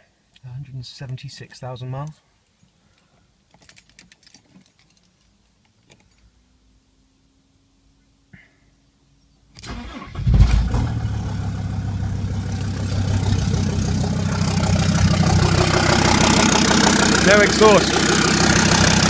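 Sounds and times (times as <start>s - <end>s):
diesel engine cranking and running: 9.6s - 19.0s.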